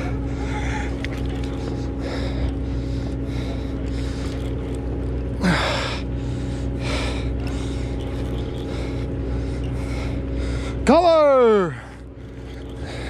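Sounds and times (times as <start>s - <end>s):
person breathing hard: 0.0s - 4.4s, 5.4s - 10.8s
boat engine humming: 0.0s - 13.0s.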